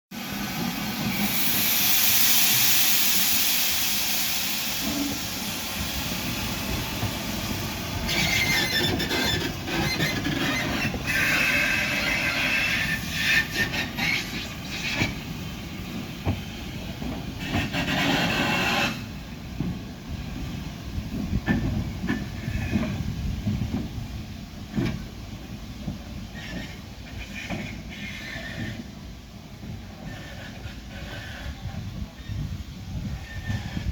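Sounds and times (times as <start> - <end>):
steam hissing: 0.1 - 33.9
high metallic squealing: 8.1 - 14.6.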